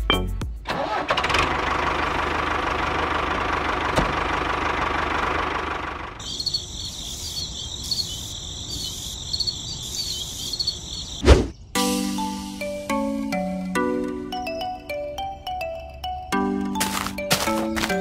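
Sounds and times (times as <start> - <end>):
insect-like chirping: 6.2 - 11.7.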